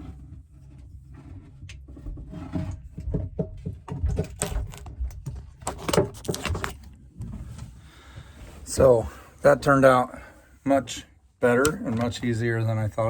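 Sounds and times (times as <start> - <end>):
knocks and clatter of handwork: 0.2 - 7.4.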